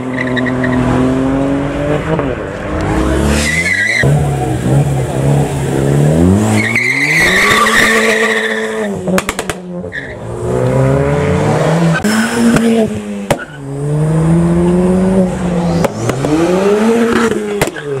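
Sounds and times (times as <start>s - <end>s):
car engine accelerating: 0.0s - 18.0s
tyres squealing: 3.3s - 5.0s, 6.5s - 8.9s.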